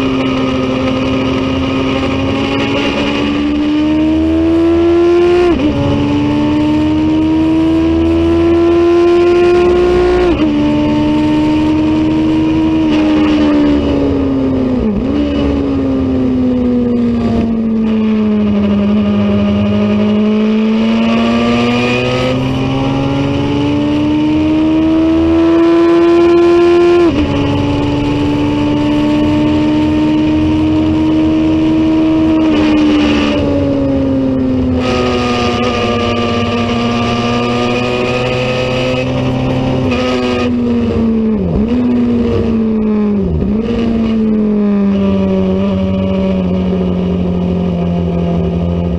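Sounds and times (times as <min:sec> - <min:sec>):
racing motorcycle engine revving: 0:00.0 - 0:48.9.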